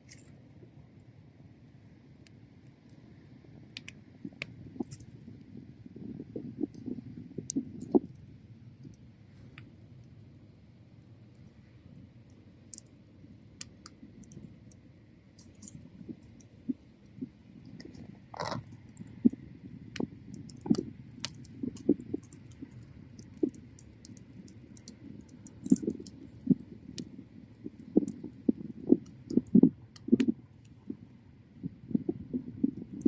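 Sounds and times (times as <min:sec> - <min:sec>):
low rumble of burning: 0:00.0 - 0:33.0
bonfire crackling pops: 0:03.6 - 0:06.0, 0:13.6 - 0:30.8.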